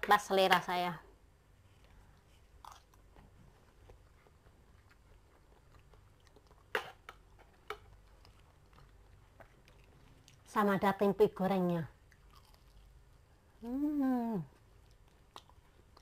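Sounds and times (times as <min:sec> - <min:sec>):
chewing food: 0:01.8 - 0:10.6, 0:11.9 - 0:13.6, 0:14.4 - 0:16.0.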